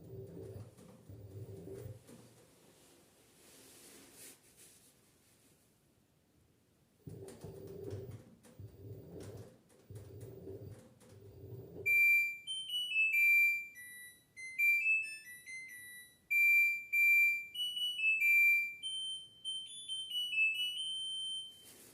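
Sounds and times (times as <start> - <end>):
washing machine hum: 0.0 - 2.9, 7.0 - 12.4
electronic beep melody: 11.3 - 21.6.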